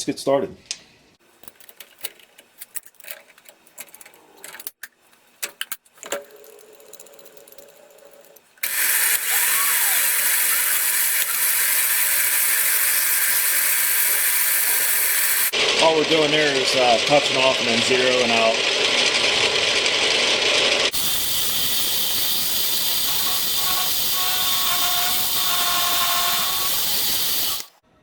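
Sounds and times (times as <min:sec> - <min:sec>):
tool handling clicks and knocks: 0:01.4 - 0:08.5
milling machine spindle hiss: 0:08.6 - 0:15.5, 0:20.9 - 0:27.8.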